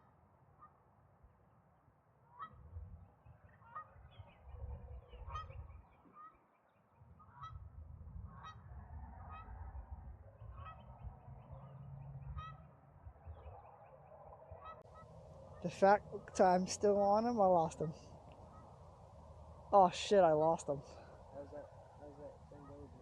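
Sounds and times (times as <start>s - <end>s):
geese honking: 10.5s - 11.0s, 11.6s - 12.8s, 13.4s - 18.8s, 20.3s - 23.0s.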